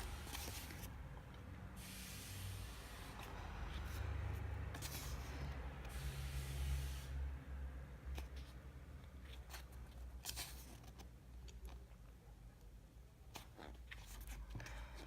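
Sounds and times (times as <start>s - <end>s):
pages being turned: 0.0s - 1.1s, 4.7s - 5.4s, 9.2s - 11.2s.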